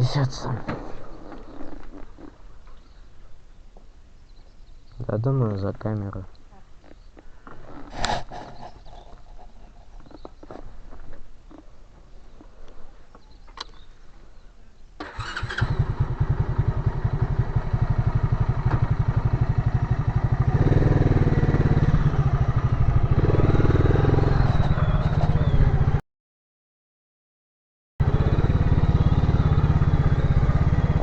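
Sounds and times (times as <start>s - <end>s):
motorcycle engine revving: 15.0s - 26.0s, 28.0s - 31.0s.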